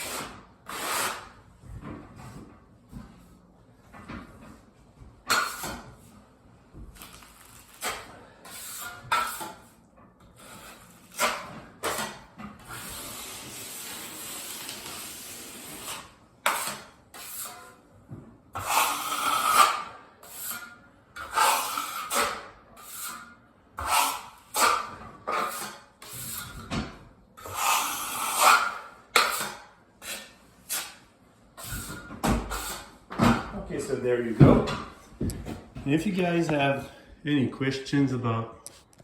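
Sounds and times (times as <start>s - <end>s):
drywall knife scraping compound: 0.0s - 1.5s, 5.3s - 6.2s, 6.9s - 17.8s, 18.6s - 26.8s, 27.4s - 35.0s.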